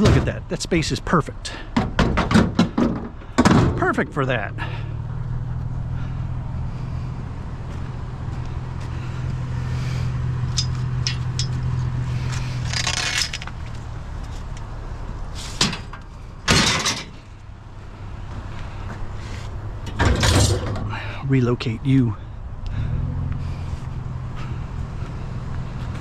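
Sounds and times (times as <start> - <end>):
vehicle engine idling: 2.7 - 16.5, 17.1 - 26.0
metal scrap clattering: 10.5 - 11.7, 12.6 - 13.6, 15.4 - 17.4, 19.9 - 20.9.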